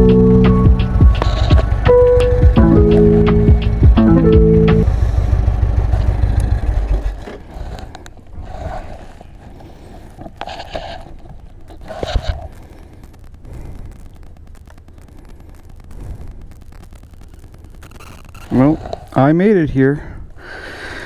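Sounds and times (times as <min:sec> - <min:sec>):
music track: 0:00.0 - 0:04.9
low wind rumble: 0:00.0 - 0:10.2.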